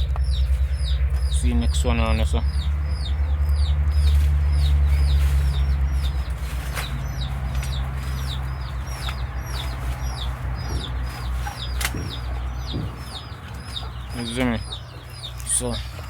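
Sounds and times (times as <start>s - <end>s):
chickens chirping: 0.0s - 16.0s
low rumble: 0.0s - 16.0s.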